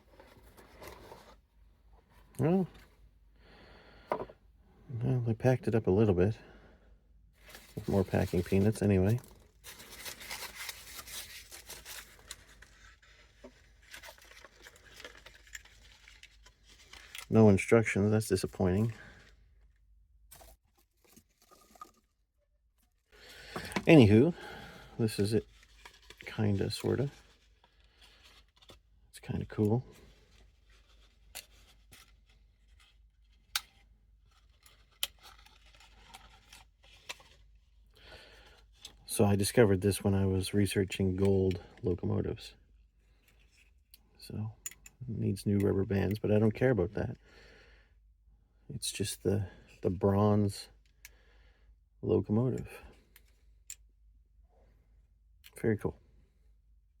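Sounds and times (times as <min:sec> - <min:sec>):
soft rustling of handling: 0:00.0 - 0:03.1, 0:07.4 - 0:22.2, 0:22.8 - 0:47.2
packaging rustling and clicking: 0:07.4 - 0:17.3.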